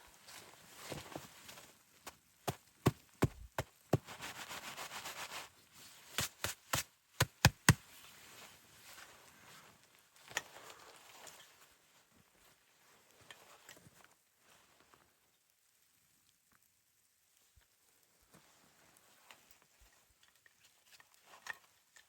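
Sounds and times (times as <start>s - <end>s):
rustling or scraping: 0.2s - 11.6s
sharp knocks: 6.2s - 7.8s.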